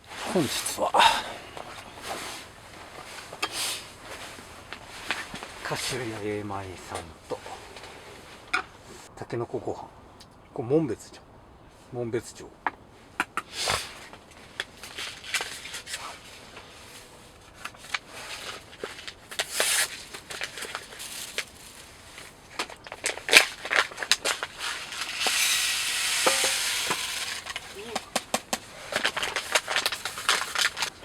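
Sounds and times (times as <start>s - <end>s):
even hiss: 0.0s - 9.1s, 24.5s - 30.8s
food packaging rustling: 14.4s - 31.0s.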